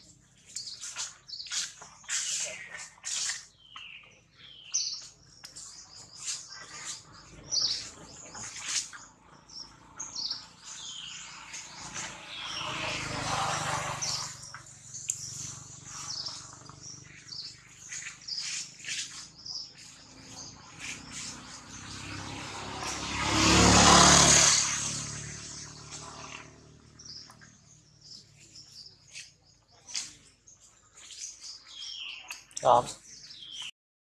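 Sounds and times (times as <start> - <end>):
birds chirping: 0.0 - 33.7
broad rushing noise: 15.2 - 27.0.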